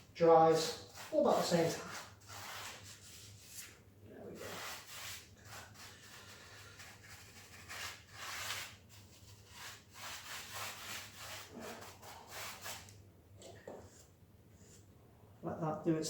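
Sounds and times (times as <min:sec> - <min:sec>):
paintbrush brushing on rough floor: 0:00.6 - 0:03.7, 0:04.3 - 0:12.9.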